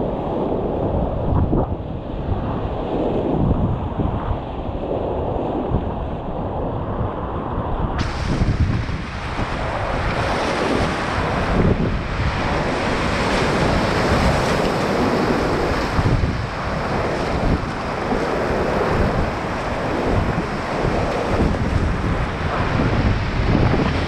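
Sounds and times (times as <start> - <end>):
wind buffeting microphone: 0.0 - 24.0
whitewater rapids roaring: 8.0 - 24.0.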